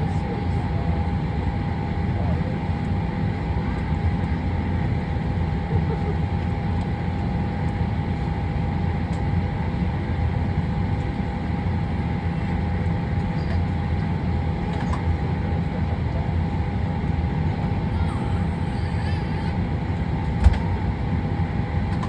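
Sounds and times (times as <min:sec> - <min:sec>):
faint high hum: 0:14.7 - 0:22.0.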